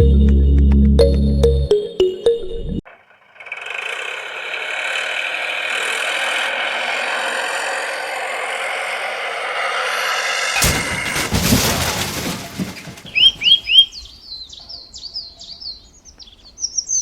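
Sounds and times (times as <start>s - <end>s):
music: 0.0s - 2.8s
toy motor and gears whirring: 2.9s - 9.8s.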